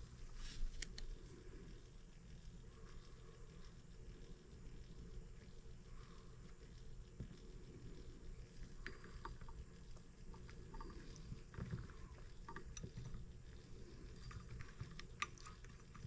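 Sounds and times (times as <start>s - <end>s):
low steady hum: 0.0s - 16.0s
light clicks and taps: 0.4s - 1.3s, 4.9s - 16.0s.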